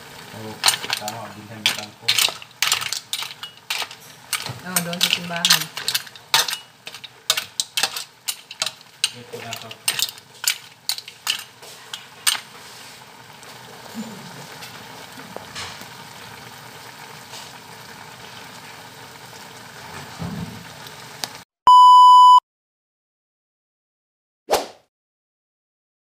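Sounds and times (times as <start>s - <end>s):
food sizzling in a pan: 0.0s - 21.4s
utensil clinking on a pan: 0.5s - 12.5s
loud electronic beep: 21.7s - 22.4s.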